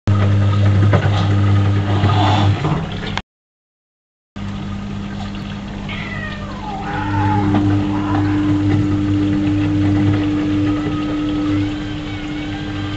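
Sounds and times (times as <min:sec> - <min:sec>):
drain pump humming: 0:00.1 - 0:03.2, 0:04.4 - 0:12.9
water gurgling through hose: 0:00.2 - 0:03.2, 0:05.0 - 0:11.7.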